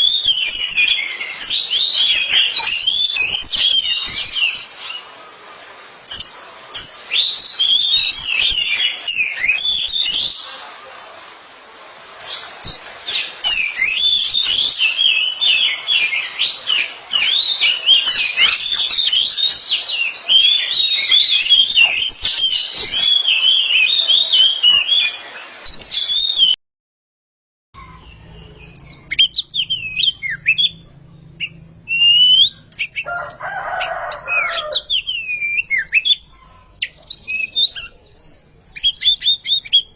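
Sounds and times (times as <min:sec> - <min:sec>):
birds singing whistled song: 0:00.0 - 0:05.1, 0:06.1 - 0:10.6, 0:12.2 - 0:26.6, 0:27.8 - 0:39.9
rustling noise: 0:00.0 - 0:07.4.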